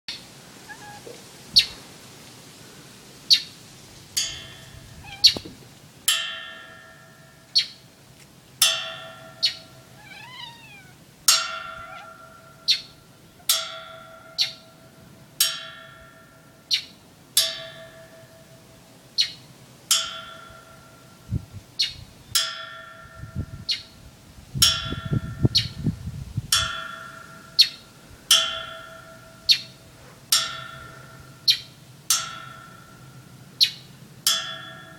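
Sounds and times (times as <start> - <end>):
low knocks: 4.2 - 5.8
struck object ringing: 4.2 - 7.4
bird chirping: 4.4 - 5.6, 7.5 - 7.8, 9.3 - 11.0, 11.8 - 13.5, 14.4 - 14.6, 19.2 - 19.4, 21.8 - 22.0, 27.6 - 27.8, 29.4 - 29.8, 30.8 - 31.8, 33.6 - 33.9.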